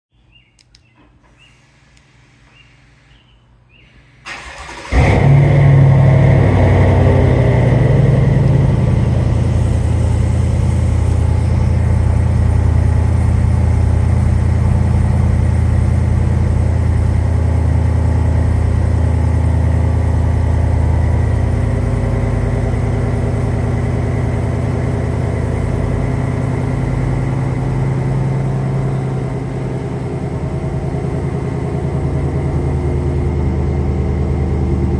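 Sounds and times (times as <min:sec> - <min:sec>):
engine cranking: 0:04.3 - 0:05.4
truck engine rumbling idle: 0:04.4 - 0:34.9.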